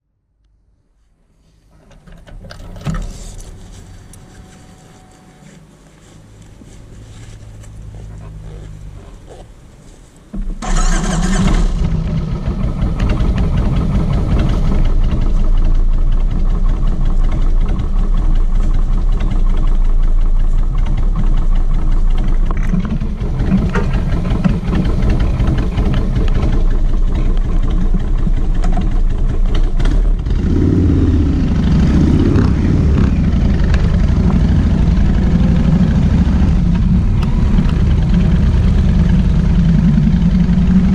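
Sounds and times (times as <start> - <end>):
motorcycle engine starting and idling: 1.6 - 40.9
starter motor whirr: 10.3 - 30.8.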